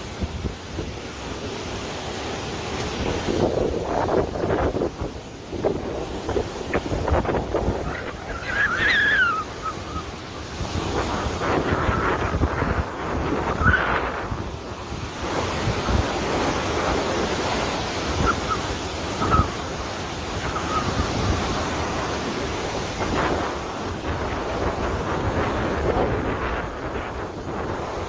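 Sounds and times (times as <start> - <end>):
surging seawater: 0.0 - 28.0
wind buffeting the microphone: 0.0 - 28.0.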